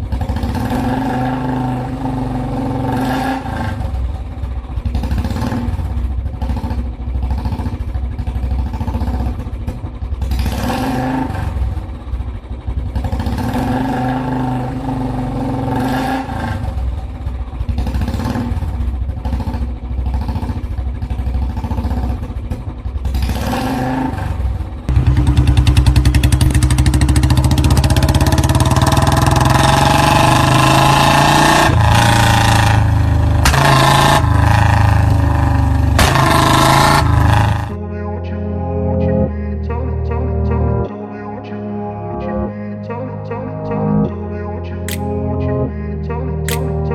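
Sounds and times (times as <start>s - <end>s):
engine revving: 0.0s - 37.8s, 44.9s - 45.3s, 46.5s - 46.9s.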